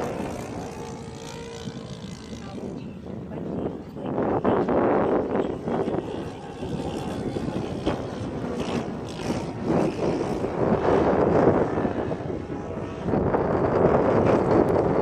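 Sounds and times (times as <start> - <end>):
model plane engine and propeller: 0.0 - 15.0.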